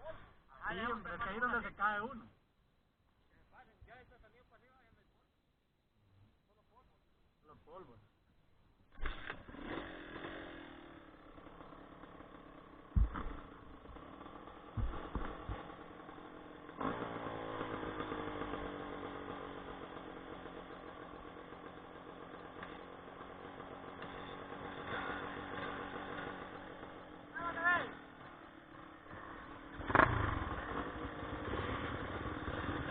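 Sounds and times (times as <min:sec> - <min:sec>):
off-road motorcycle engines: 0:00.0 - 0:32.9
short dull thumps: 0:12.9 - 0:14.0, 0:14.7 - 0:15.8.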